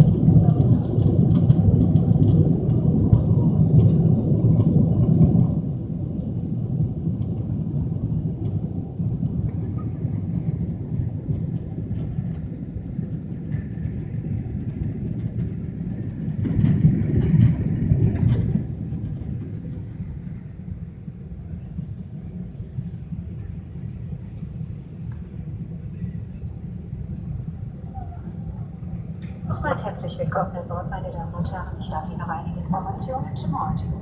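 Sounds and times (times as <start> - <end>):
jet cabin engine rumble: 0.0 - 34.0.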